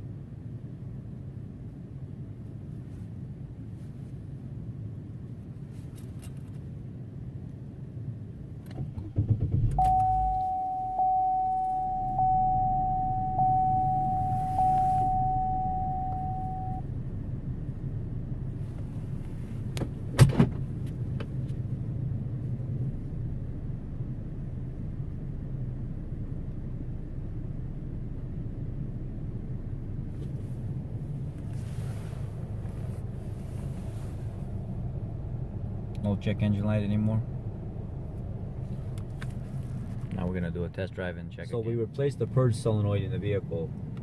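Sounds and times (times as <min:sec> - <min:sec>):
car engine idling: 0:08.8 - 0:41.0
dashboard warning chime: 0:09.8 - 0:16.9.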